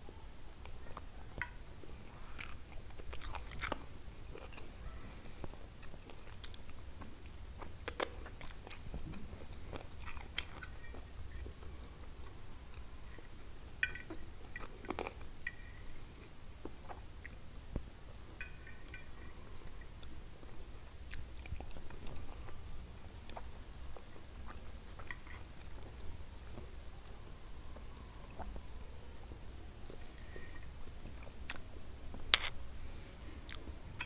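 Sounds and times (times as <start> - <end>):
chewing and biting food: 1.9 - 11.6.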